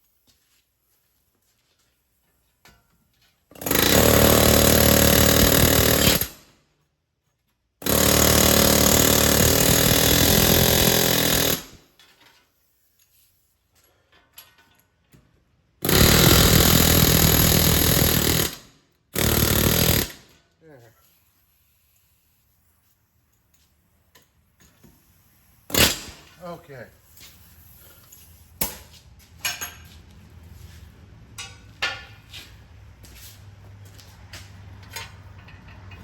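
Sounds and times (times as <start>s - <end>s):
pneumatic air hammer on metal: 3.5s - 6.4s, 7.8s - 11.8s, 15.8s - 20.4s, 25.7s - 26.4s.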